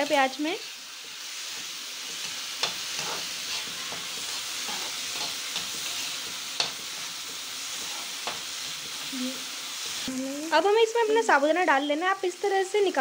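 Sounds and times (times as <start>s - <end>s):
onions sizzling in hot oil: 0.0s - 13.0s
spoon scraping and clicking on pan: 1.6s - 6.9s.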